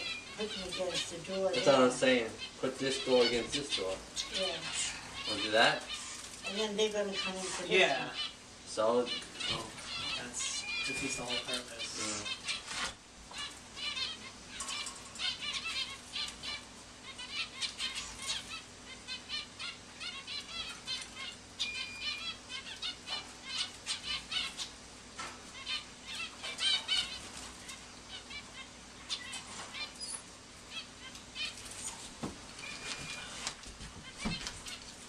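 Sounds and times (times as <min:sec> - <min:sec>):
birds fluttering wings: 0:00.0 - 0:07.8, 0:22.6 - 0:28.4, 0:31.0 - 0:35.0
birds chirping: 0:00.0 - 0:35.0.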